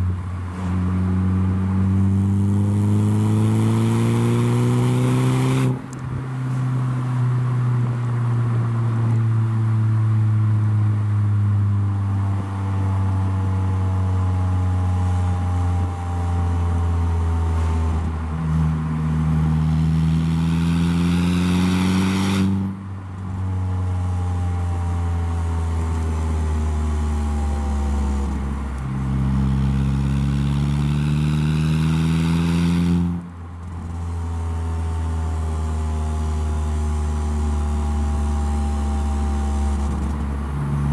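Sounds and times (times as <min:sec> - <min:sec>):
car engine revving: 0:00.4 - 0:05.9, 0:18.9 - 0:22.8, 0:26.3 - 0:34.6.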